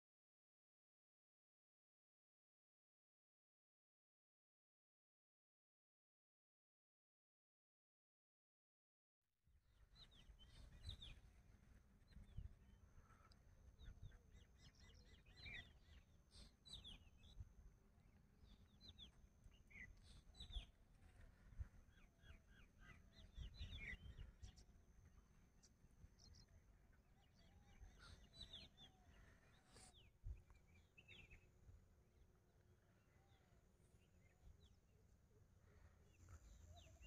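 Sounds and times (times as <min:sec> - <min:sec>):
small birds chirping: 0:09.8 - 0:31.6, 0:32.8 - 0:37.0.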